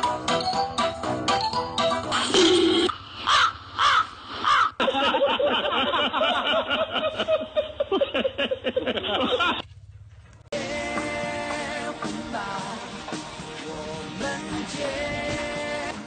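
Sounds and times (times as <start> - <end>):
crow-like caws: 3.2 - 4.8
dense laughter: 4.7 - 9.7.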